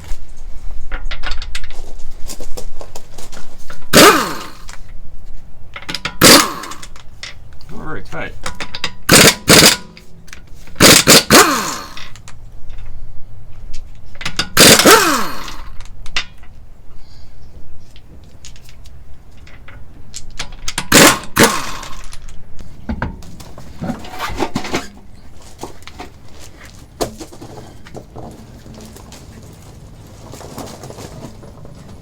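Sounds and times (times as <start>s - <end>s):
tool clicks and scrapes: 3.6s - 4.9s, 19.6s - 22.7s, 23.6s - 26.2s
impact wrench bursts: 3.8s - 4.8s, 5.9s - 7.0s, 8.4s - 10.0s, 10.7s - 12.2s, 14.3s - 15.8s, 20.7s - 22.3s.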